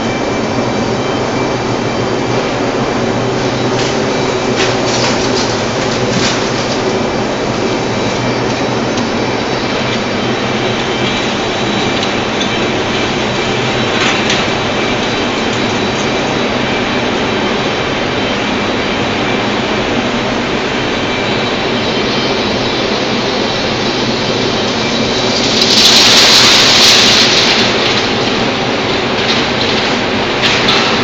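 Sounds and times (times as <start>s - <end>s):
industrial plant running noise: 0.0s - 31.0s
loud hiss: 22.4s - 31.0s.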